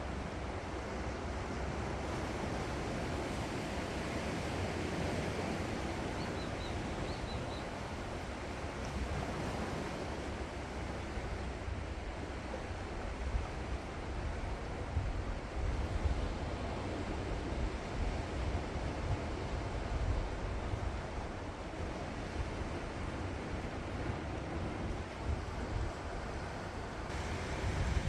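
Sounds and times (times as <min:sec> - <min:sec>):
sea waves on shore: 0:00.0 - 0:28.0
wind buffeting microphone: 0:13.2 - 0:28.0.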